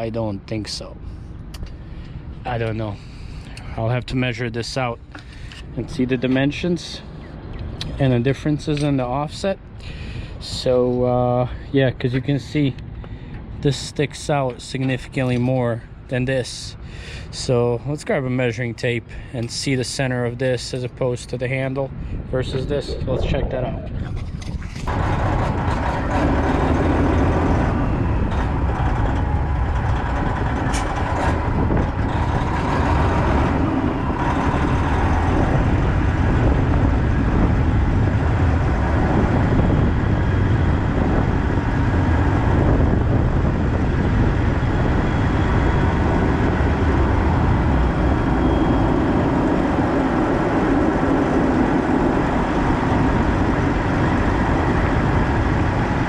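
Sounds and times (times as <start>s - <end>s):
truck engine running: 24.2s - 56.0s.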